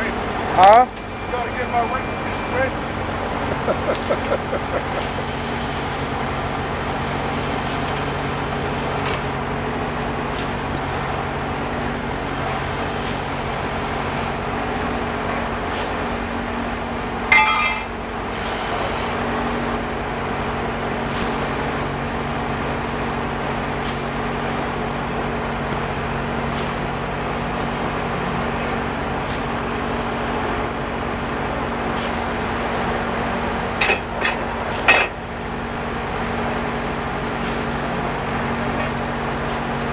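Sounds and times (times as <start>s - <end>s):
drilling rig engine running: 0.0s - 10.2s, 10.9s - 39.9s
sharp metallic clink: 17.3s - 18.0s.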